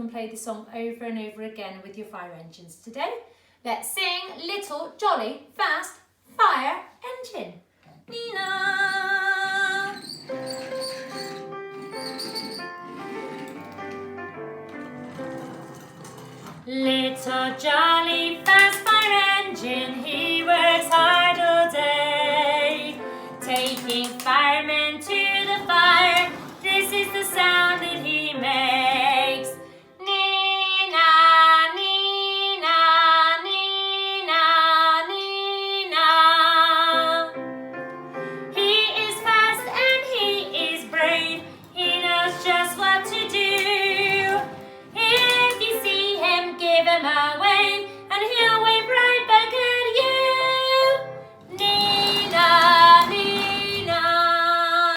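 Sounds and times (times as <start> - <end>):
woman singing: 8.1 - 10.2, 16.7 - 37.4, 38.5 - 54.9.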